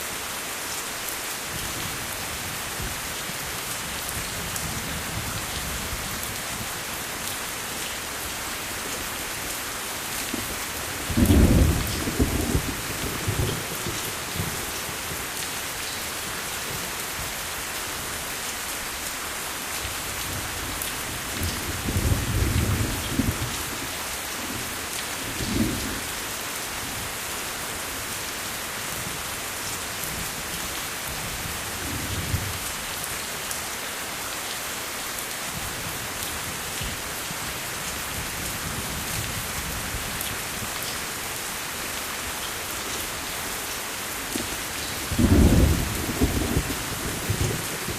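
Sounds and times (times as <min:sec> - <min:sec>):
heavy rain: 0:00.0 - 0:47.9
thunder rumbling: 0:11.1 - 0:14.5, 0:45.0 - 0:47.9.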